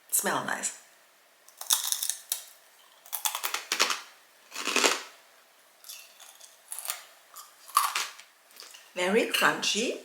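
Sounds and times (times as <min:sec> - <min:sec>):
crunchy snack being chewed: 0:01.5 - 0:05.1, 0:05.8 - 0:08.8.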